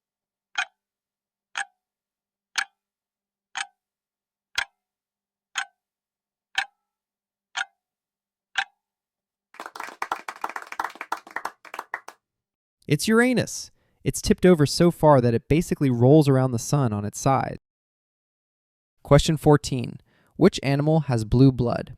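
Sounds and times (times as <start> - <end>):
clock ticking: 0.5 - 0.8, 1.5 - 1.8, 2.5 - 2.8, 3.6 - 3.8, 4.6 - 4.8, 5.6 - 5.8, 6.6 - 6.8, 7.6 - 7.8, 8.6 - 8.8.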